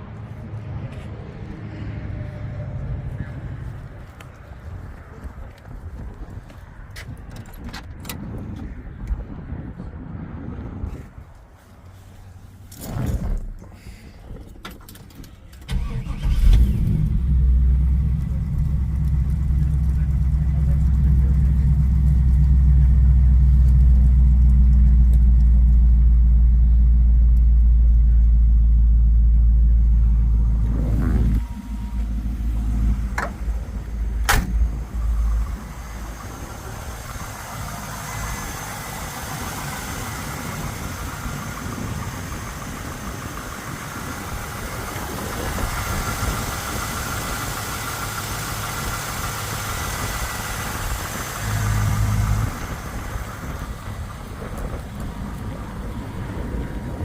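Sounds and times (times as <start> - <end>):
car engine idling deep: 15.2 - 57.0.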